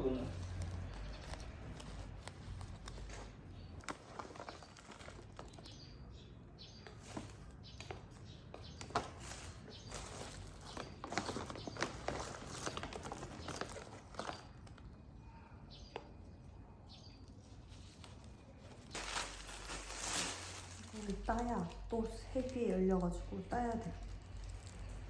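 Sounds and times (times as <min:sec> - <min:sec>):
packaging rustling: 0:00.1 - 0:05.8, 0:08.8 - 0:14.9, 0:17.4 - 0:22.8, 0:23.6 - 0:25.0
items clicking and knocking: 0:00.3 - 0:05.8, 0:06.8 - 0:14.9.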